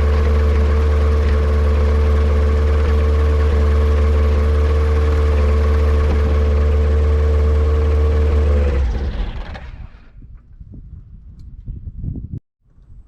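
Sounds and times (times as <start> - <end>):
airplane engine running: 0.0 - 10.2
engine winding down: 0.0 - 10.2.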